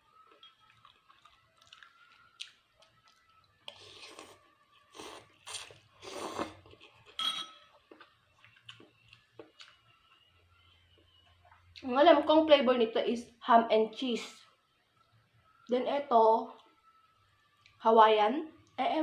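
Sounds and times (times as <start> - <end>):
person chewing and crunching food: 0.0 - 11.8.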